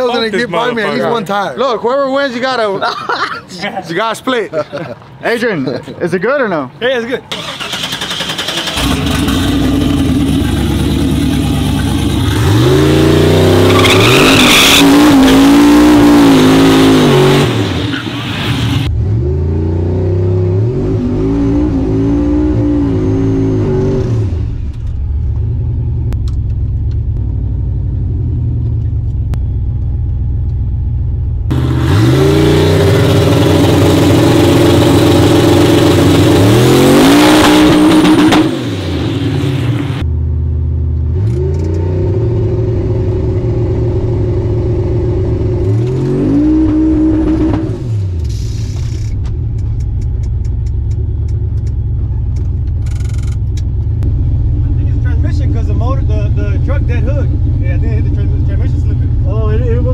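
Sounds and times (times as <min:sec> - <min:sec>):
truck engine at full throttle: 0:07.3 - 0:26.1, 0:31.3 - 0:59.9.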